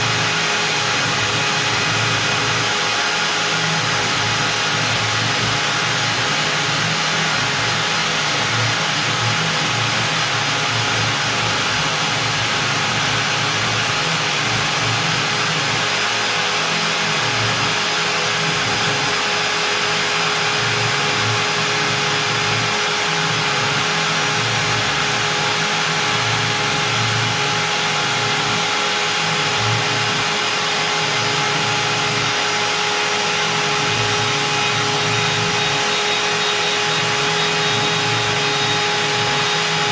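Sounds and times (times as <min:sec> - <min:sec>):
router bit cutting wood: 0:00.0 - 0:39.9
router spindle whine: 0:00.0 - 0:39.9.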